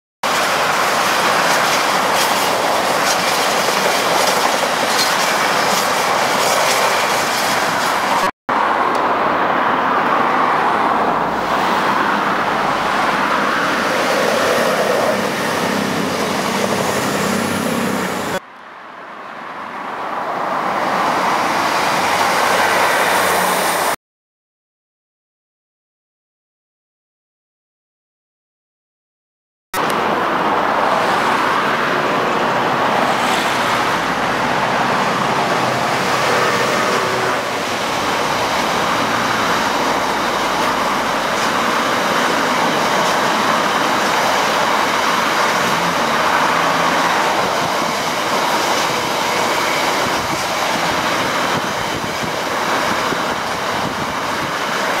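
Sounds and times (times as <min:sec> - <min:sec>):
wagon wheels rumbling on rail: 0:00.2 - 0:08.3, 0:32.7 - 0:55.0
diesel locomotive engine: 0:00.2 - 0:18.5, 0:29.8 - 0:55.0.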